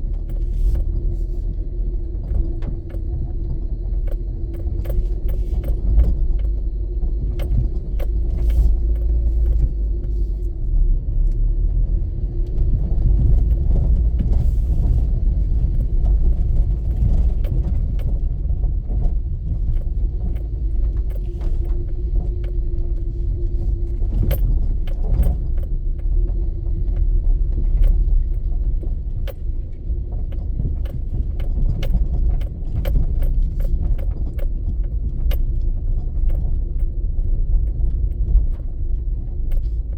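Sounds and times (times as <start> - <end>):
road vehicle rumble: 0.0 - 39.9
clicks and rattles: 7.3 - 10.5, 13.2 - 26.1, 27.6 - 37.0.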